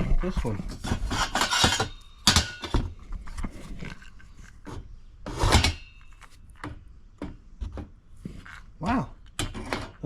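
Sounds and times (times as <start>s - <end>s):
metal bolts clattering: 1.1s - 2.8s.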